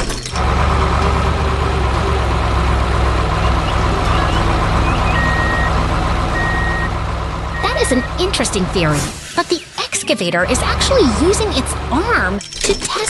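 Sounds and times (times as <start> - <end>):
heavy vehicle engine rumbling: 0.0 - 13.0
reversing alarm beeps: 4.0 - 5.8, 6.4 - 6.9, 7.5 - 8.2.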